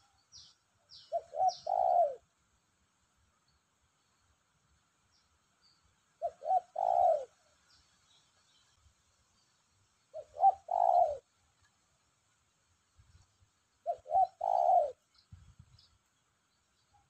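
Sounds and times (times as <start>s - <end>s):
dove cooing: 1.0s - 2.3s, 6.2s - 7.5s, 10.1s - 11.3s, 13.8s - 15.1s.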